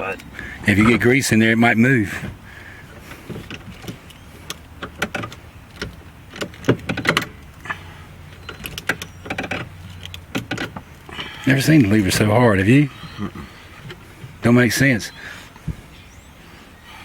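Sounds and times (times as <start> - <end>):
gear shift lever clicks and clunks: 2.0 - 12.4, 13.8 - 14.4.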